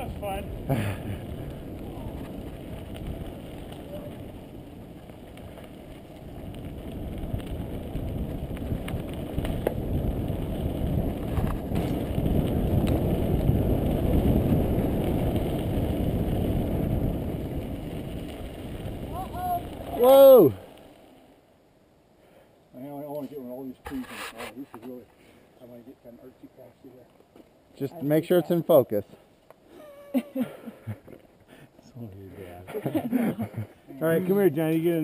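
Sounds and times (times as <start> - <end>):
wind on microphone: 0.0 - 20.6
mountain bike tyres on dirt: 0.0 - 35.0.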